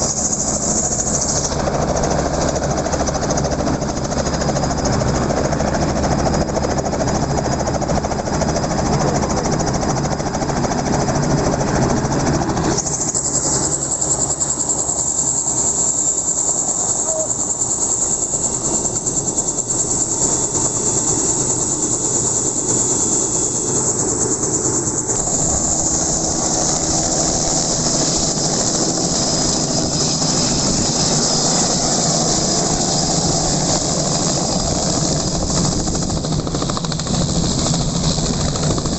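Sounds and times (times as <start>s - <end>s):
helicopter engine and rotor: 0.0s - 38.9s
loud high hiss: 25.2s - 34.6s.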